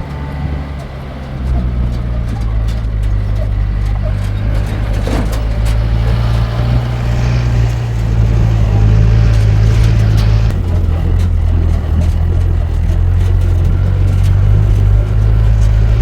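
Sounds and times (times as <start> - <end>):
light rattles: 0.0 - 16.0
vehicle engine droning: 0.0 - 16.0.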